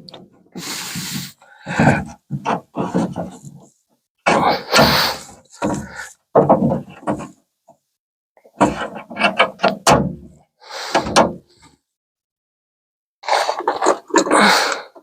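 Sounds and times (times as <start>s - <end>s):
metal knocks and clunks: 1.7s - 3.7s, 4.3s - 7.4s, 8.5s - 11.6s.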